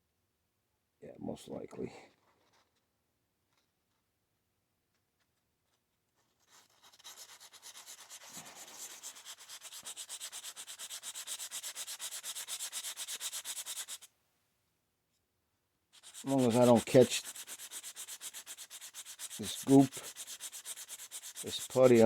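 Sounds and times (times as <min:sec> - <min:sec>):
hand sanding with sanding sponge: 0:06.4 - 0:14.1, 0:16.0 - 0:22.0.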